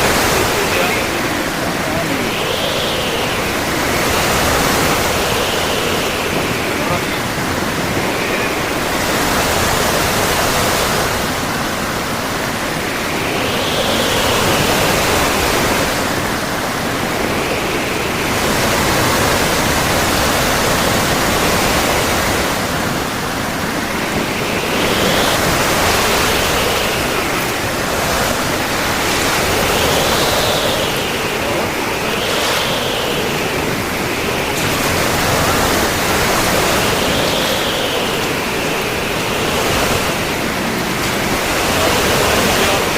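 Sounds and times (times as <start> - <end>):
rough sea surf breaking: 0.0 - 42.9.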